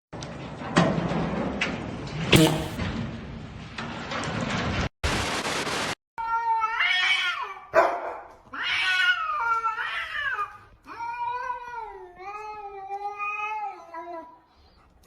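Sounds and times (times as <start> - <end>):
short sharp noise: 2.3 - 2.8.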